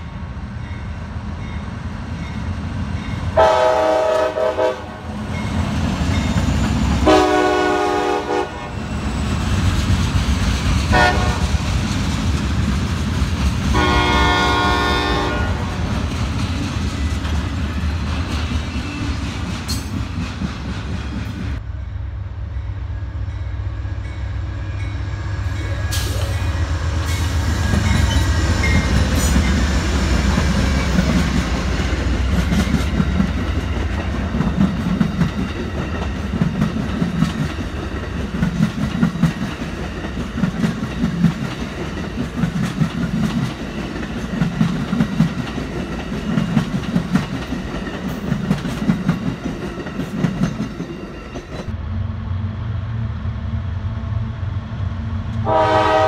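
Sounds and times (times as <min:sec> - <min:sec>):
diesel train rumbling past: 0:00.0 - 0:56.0
freight train rumbling: 0:00.0 - 0:56.0
multi-chime train horn: 0:03.4 - 0:05.6, 0:07.0 - 0:08.8, 0:10.9 - 0:11.6, 0:13.8 - 0:15.9, 0:55.4 - 0:56.0
train wheels clacking on rail joints: 0:15.7 - 0:21.6, 0:25.8 - 0:51.7.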